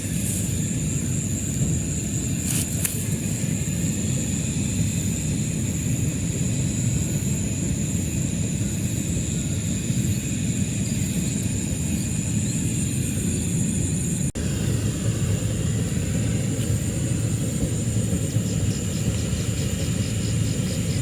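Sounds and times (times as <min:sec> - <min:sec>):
low rumbling noise: 0:00.0 - 0:21.0.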